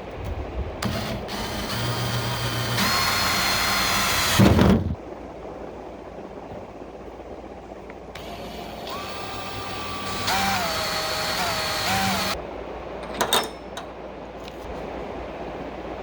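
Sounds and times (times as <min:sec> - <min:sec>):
small motor whining: 0:00.8 - 0:05.0, 0:08.2 - 0:12.4.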